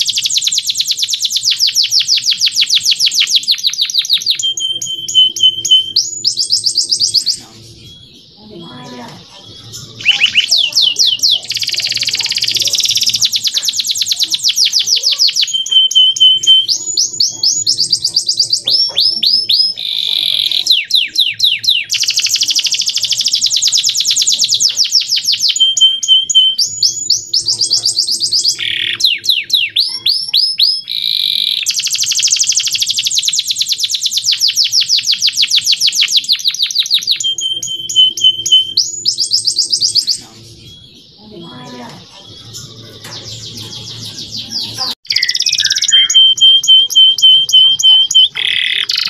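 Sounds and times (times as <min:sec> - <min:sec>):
canary singing: 0:00.0 - 0:49.0.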